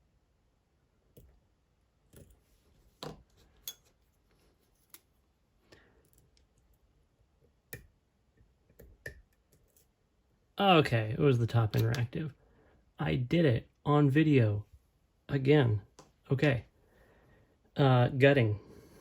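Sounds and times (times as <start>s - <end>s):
lock picks clicking and scraping: 11.7s - 12.0s.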